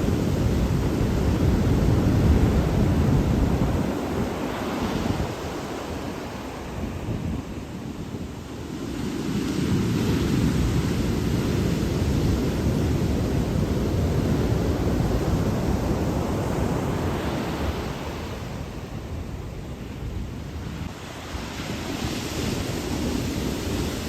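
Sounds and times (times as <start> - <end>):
ocean surf washing in: 0.0 - 24.0
wind rumbling on microphone: 0.0 - 24.0.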